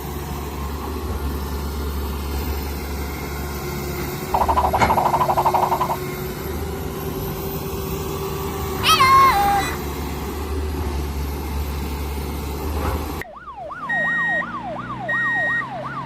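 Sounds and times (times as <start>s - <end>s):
vehicle engine idling: 1.0s - 7.2s
rapid buzzing rattle: 4.3s - 6.1s.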